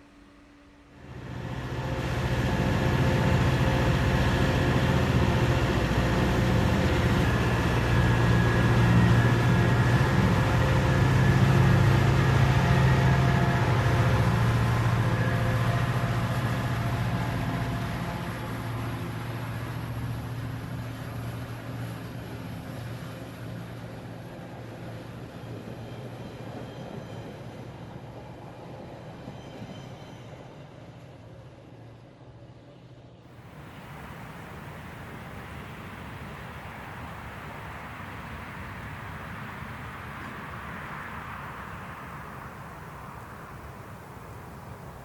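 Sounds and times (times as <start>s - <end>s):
large vehicle rumble: 1.1s - 21.8s
faint high whine: 33.4s - 45.0s.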